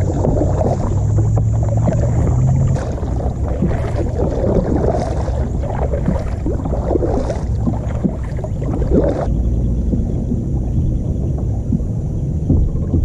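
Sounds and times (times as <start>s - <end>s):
steady low rumble: 0.0s - 13.0s
water gurgling along kayak hull: 0.0s - 13.0s.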